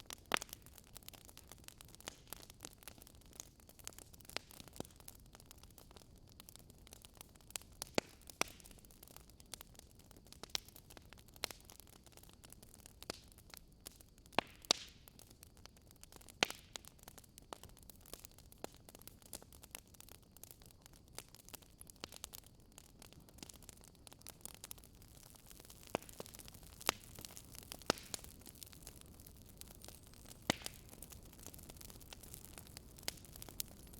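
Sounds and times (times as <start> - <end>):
wood fire crackling: 0.0 - 33.9.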